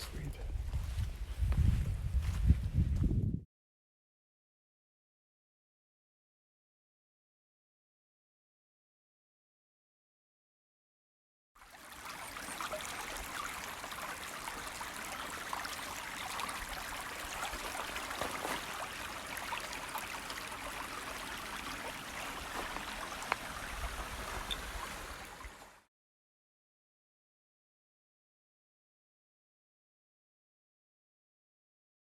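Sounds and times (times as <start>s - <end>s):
stream water running over rocks: 11.6s - 25.9s.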